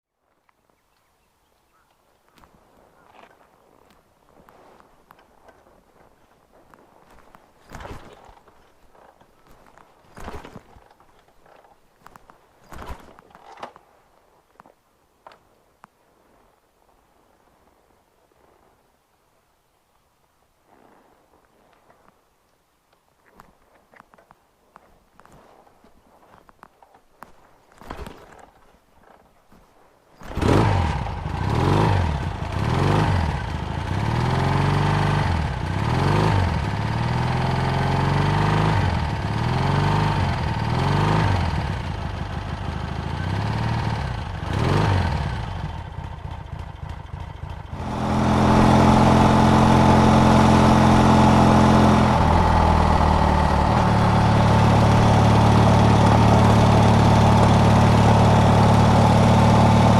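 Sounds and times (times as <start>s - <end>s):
motorcycle engine revving: 30.2s - 59.9s.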